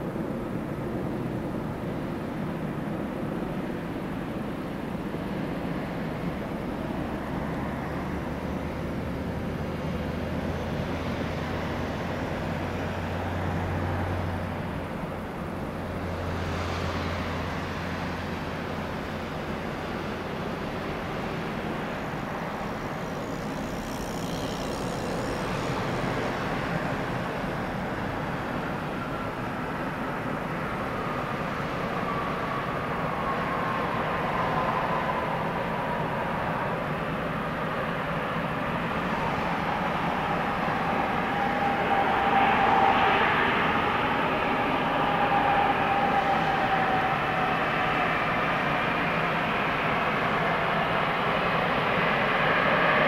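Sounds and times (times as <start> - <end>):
jet engine whine: 0.0 - 53.0
jet engines rushing rumble: 0.0 - 53.0.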